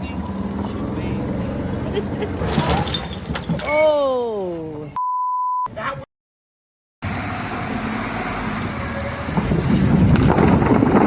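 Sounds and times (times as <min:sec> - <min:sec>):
vehicle noise: 0:00.0 - 0:03.7, 0:07.0 - 0:11.0
clattering: 0:02.4 - 0:03.7.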